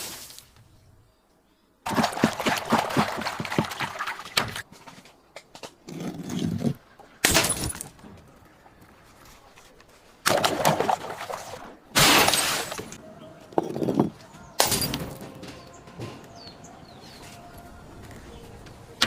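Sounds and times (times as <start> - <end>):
glass bottles smashing: 7.2 - 8.0, 12.0 - 13.0, 13.7 - 15.8.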